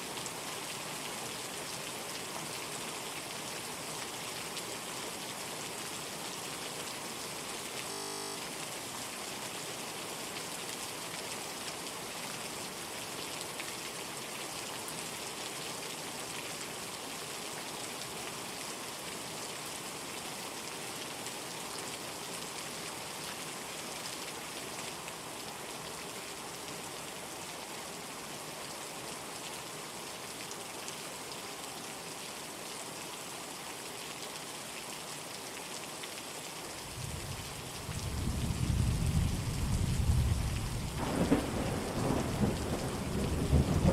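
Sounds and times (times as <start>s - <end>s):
steady rain hiss: 0.0s - 43.9s
thunder rumble: 38.2s - 43.9s.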